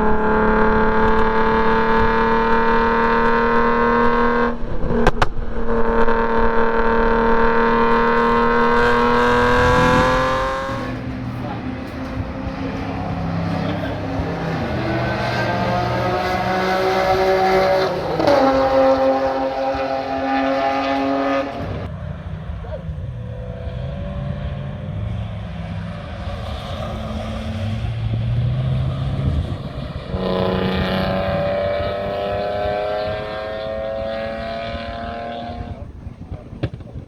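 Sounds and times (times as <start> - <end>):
car engine accelerating hard: 0.0 - 37.0.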